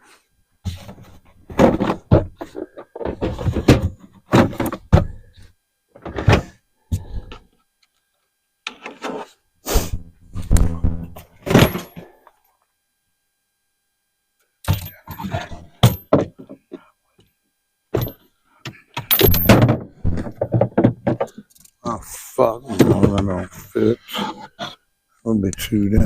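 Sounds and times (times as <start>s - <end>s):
boxes and gear clunking: 0.7s - 5.2s, 10.5s - 12.1s, 18.0s - 21.4s.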